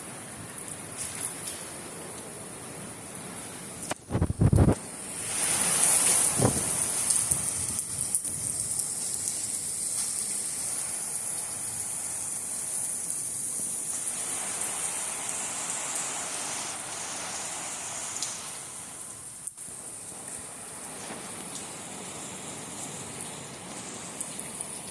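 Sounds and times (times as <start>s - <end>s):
heavy rain falling: 0.0s - 24.9s.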